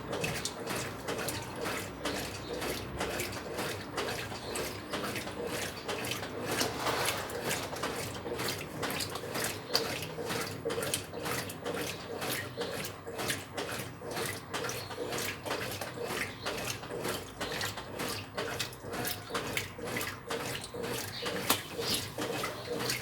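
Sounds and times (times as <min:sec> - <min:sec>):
water sloshing in washing machine: 0:00.0 - 0:23.0.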